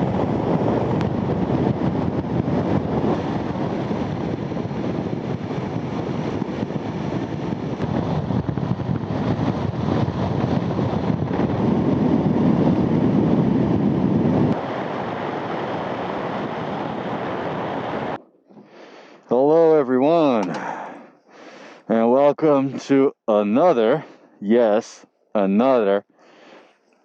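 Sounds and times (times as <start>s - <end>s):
wind and road noise: 0.0s - 21.6s.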